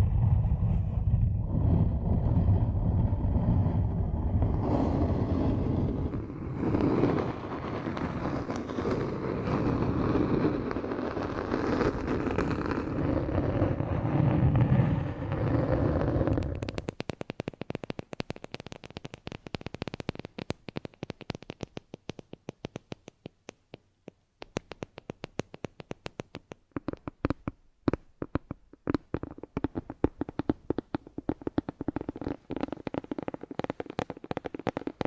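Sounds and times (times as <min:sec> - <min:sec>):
close rumbling noise: 0:00.0 - 0:10.8, 0:11.9 - 0:16.9
sharp clicks and taps: 0:16.6 - 0:35.0.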